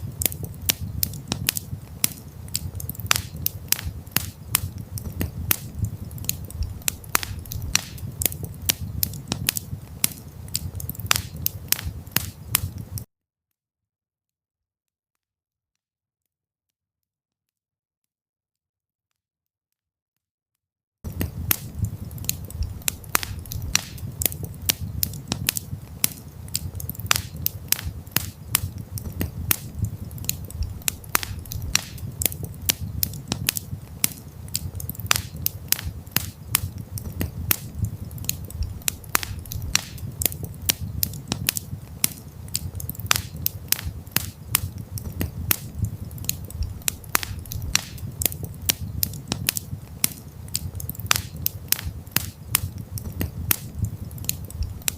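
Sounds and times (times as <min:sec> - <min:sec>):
wood fire crackling: 0:00.0 - 0:13.1, 0:21.0 - 0:54.9
low steady rumble: 0:03.7 - 0:10.0, 0:21.1 - 0:54.9.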